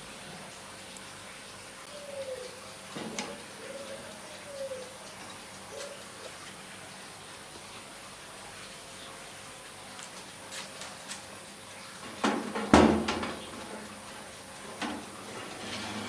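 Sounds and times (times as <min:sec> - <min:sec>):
dove cooing: 0:01.9 - 0:06.4.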